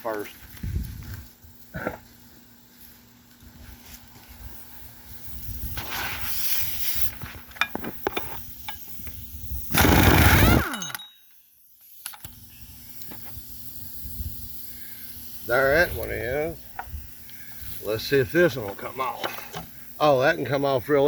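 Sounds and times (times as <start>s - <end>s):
loud burst falling in pitch: 9.7s - 10.8s
tools clinking on metal: 10.6s - 11.4s.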